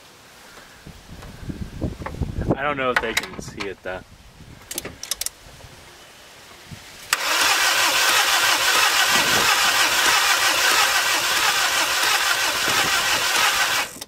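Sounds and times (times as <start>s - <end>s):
diesel engine cranking on starter: 7.1s - 14.0s
engine running steadily: 7.1s - 14.0s.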